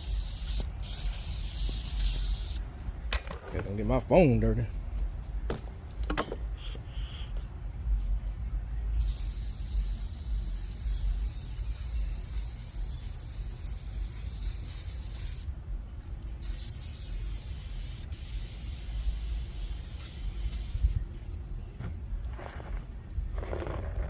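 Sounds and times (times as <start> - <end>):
spray-paint can hissing: 0.0 - 2.6, 9.0 - 15.5, 16.4 - 21.0
steady low rumble: 0.0 - 6.5, 7.4 - 13.3, 15.4 - 16.4.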